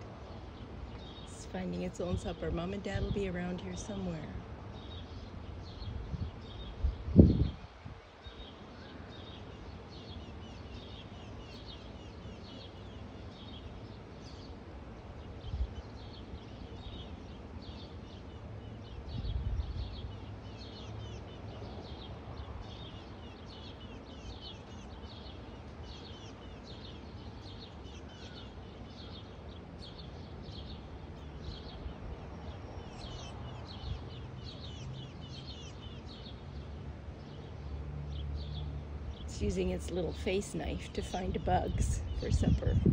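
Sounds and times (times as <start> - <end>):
low rumble of wind: 0.0 - 42.9
young birds calling: 39.2 - 42.9.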